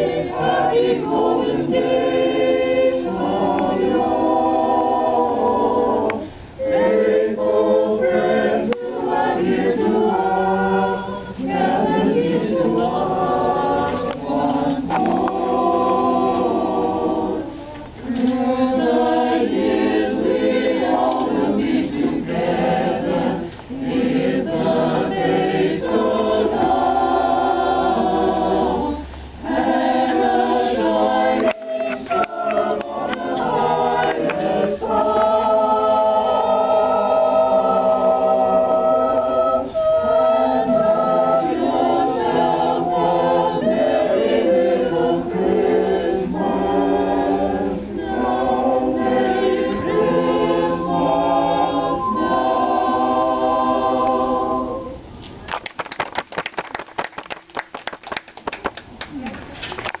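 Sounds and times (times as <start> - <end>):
choir singing a cappella: 0.0 - 55.2
people clapping: 34.0 - 35.3, 55.4 - 60.0.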